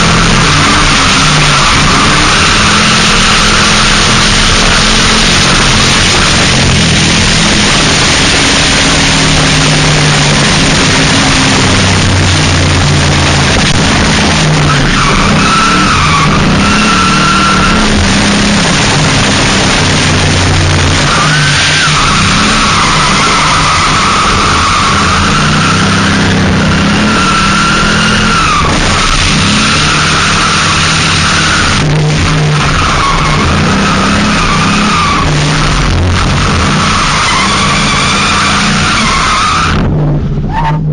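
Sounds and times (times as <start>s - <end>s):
car engine revving: 0.0s - 40.9s
tyres squealing: 21.0s - 39.8s.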